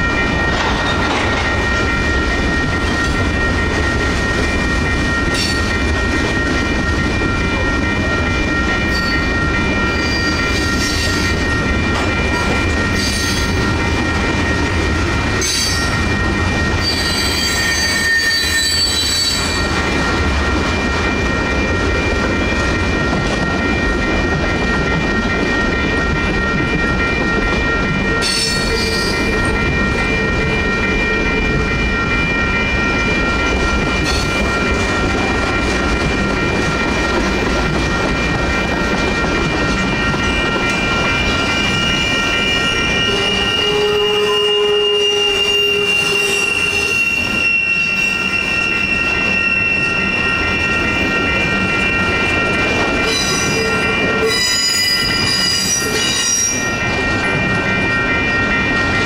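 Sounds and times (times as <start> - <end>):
crossing warning bells ringing: 0.0 - 59.0
freight train wheels rumbling: 0.0 - 59.0
wheel squeals: 16.8 - 19.7, 40.2 - 59.0.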